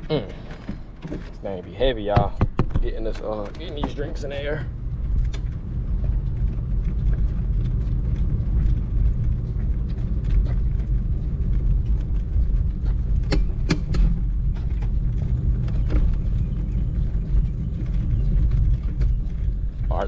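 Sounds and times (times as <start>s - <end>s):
hand truck rolling over pavement: 0.0s - 20.0s
sharp knocks: 2.1s - 4.0s.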